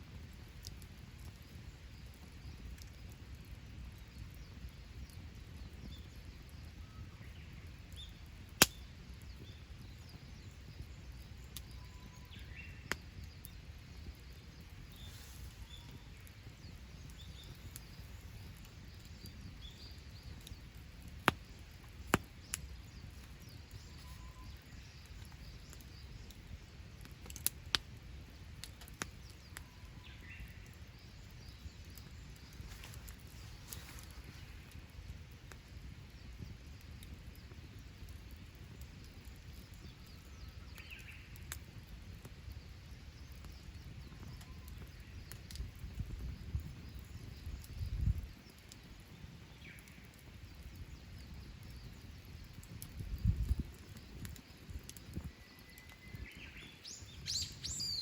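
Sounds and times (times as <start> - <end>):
campfire burning: 0.0 - 58.0
fire pops and cracks: 0.0 - 58.0
faint bird chirps: 4.2 - 27.2, 28.6 - 34.8, 42.5 - 58.0.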